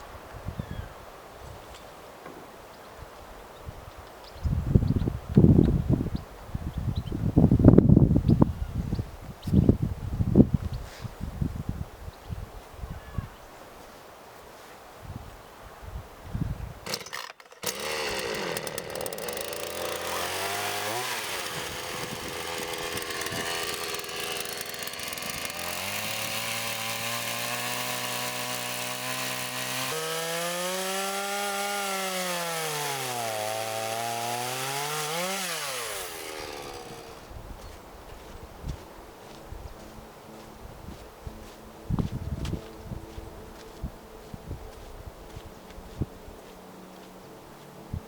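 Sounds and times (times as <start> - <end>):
chainsaw revving through wood: 16.8 - 37.3.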